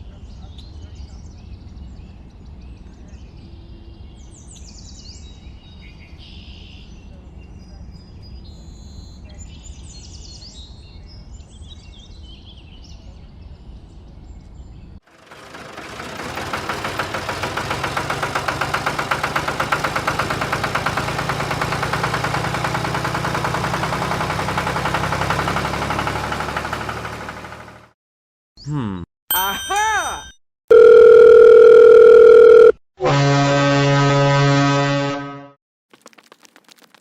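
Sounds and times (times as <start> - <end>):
small engine running: 15.0 - 28.0.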